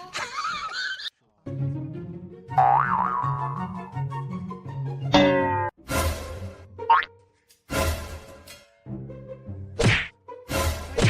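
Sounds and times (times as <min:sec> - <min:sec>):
background music: 0:01.3 - 0:11.0.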